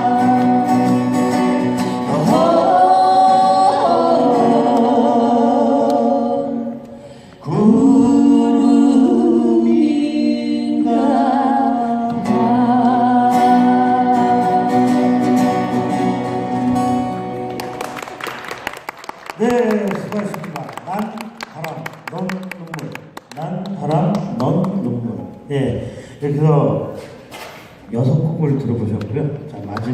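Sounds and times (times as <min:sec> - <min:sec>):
guitar accompaniment: 0:00.0 - 0:07.2, 0:10.6 - 0:18.8.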